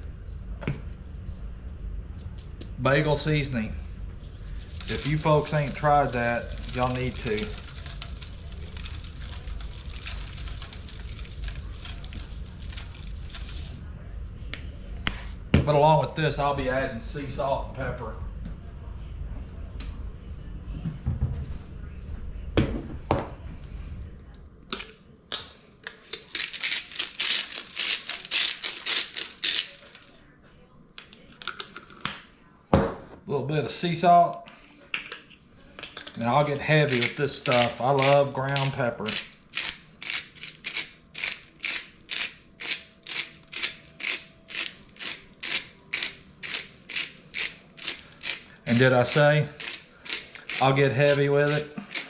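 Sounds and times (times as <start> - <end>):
salt grinder clicking: 36.9 - 52.0.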